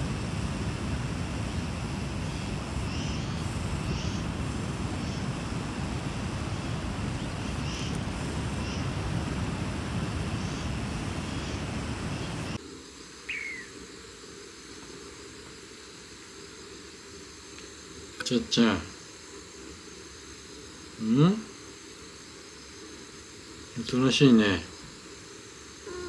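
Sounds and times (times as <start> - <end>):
outdoor background noise: 0.0 - 26.0
faint bird chirps: 2.0 - 12.6, 13.2 - 13.9, 25.8 - 26.0.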